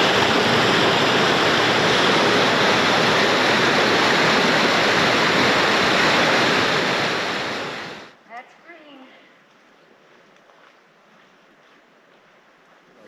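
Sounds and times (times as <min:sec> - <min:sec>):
waterfall rushing: 0:00.0 - 0:08.2.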